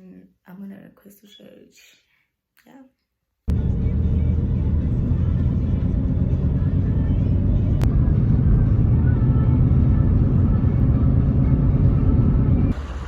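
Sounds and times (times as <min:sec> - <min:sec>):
loud low rumble: 0:03.5 - 0:13.0.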